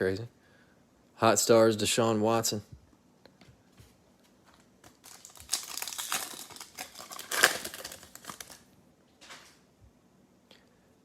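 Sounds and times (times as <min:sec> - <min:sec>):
foil wrapper crinkling: 0:04.5 - 0:08.7.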